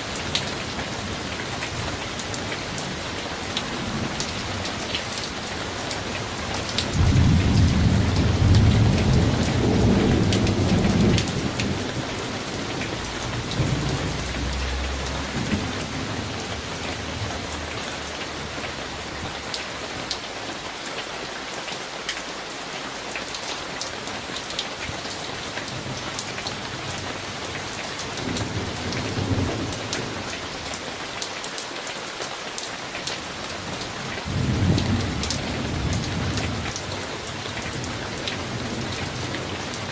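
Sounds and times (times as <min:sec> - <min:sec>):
steady rain falling: 0:00.0 - 0:39.9
rolling thunder rumble: 0:03.7 - 0:19.5.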